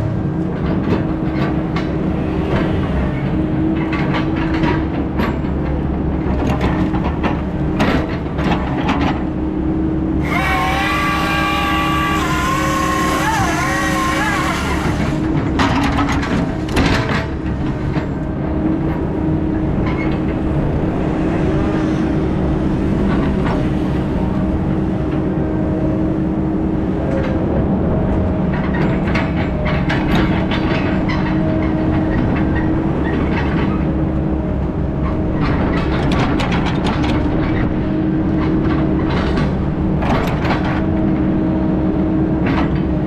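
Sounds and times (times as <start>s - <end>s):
heavy diesel engine running: 10.0s - 16.4s.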